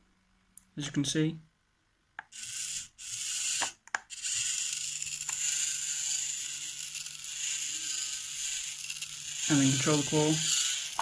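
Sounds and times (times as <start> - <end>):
servo motors whirring: 2.3 - 11.0.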